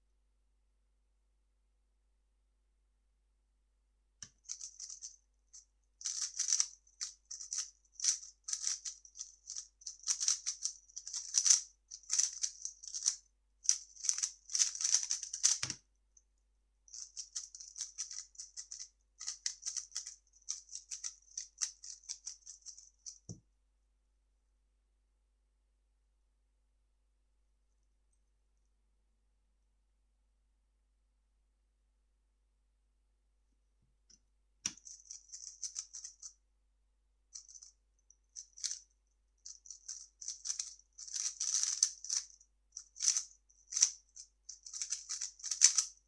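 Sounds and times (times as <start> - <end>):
speed cube clicking rattle: 4.4 - 5.2, 6.0 - 15.8, 16.9 - 23.2, 34.7 - 36.3, 37.4 - 37.7, 38.4 - 38.8, 39.5 - 46.0.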